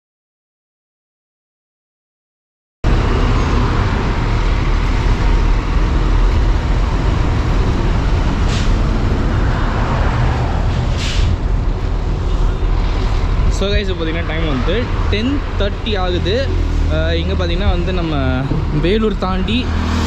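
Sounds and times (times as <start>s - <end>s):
coach engine and road rumble: 2.8s - 20.0s
short air hisses: 11.0s - 11.4s.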